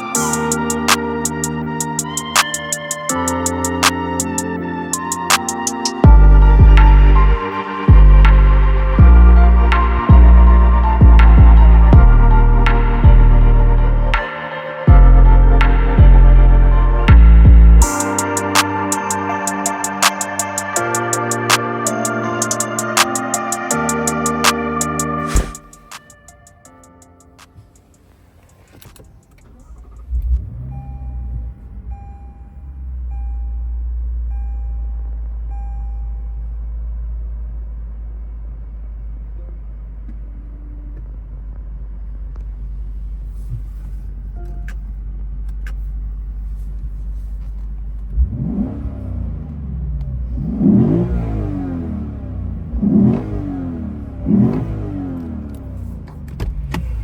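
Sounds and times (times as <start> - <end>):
car engine starting and idling: 23.8 - 57.0
car engine revving: 27.4 - 33.1, 48.0 - 57.0.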